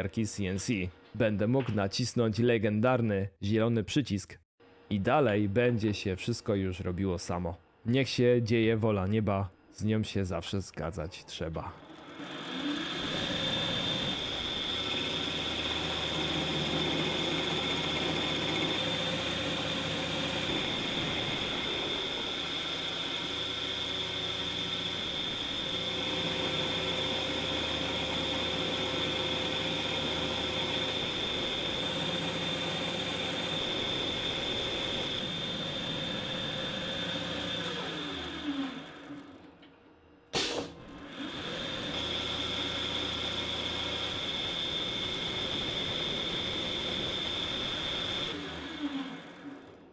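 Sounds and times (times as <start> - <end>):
lathe spindle whine: 11.8 - 39.5, 41.0 - 49.8
sharp machine clack: 40.4 - 40.8.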